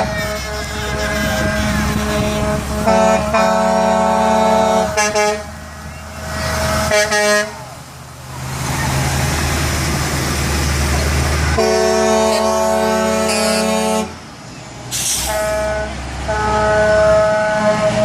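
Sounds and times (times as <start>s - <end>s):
truck air horn blasts: 0.0s - 7.8s, 11.5s - 14.2s, 14.9s - 18.0s
truck engine and tyres rumbling: 0.0s - 18.0s.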